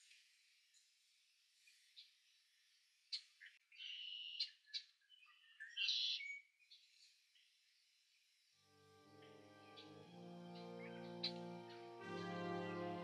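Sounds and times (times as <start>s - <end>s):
bird calls: 3.1s - 6.4s.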